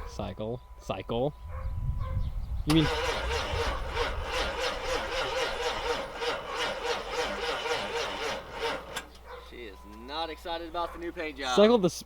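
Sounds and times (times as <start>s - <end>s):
diesel engine cranking on starter: 2.7s - 9.3s.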